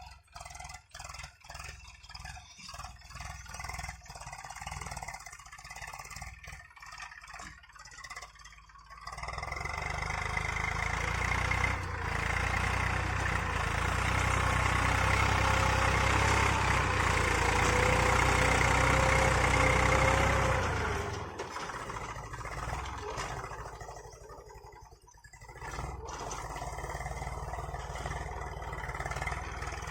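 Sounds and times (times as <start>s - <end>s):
tractor diesel engine: 0.0s - 29.9s.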